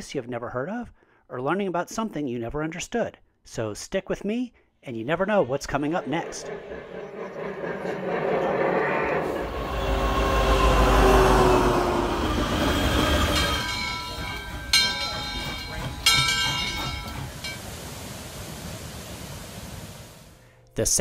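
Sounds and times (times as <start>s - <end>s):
freight train rumbling past: 5.0s - 20.4s
train horn: 9.4s - 16.4s
steam locomotive whistle: 9.4s - 18.3s.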